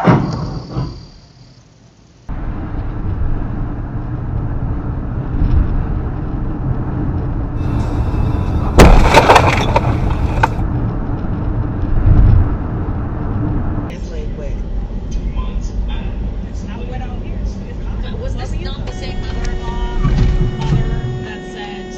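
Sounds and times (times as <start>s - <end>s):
car road rumble: 2.3s - 21.9s
car crash crunching: 7.6s - 10.6s.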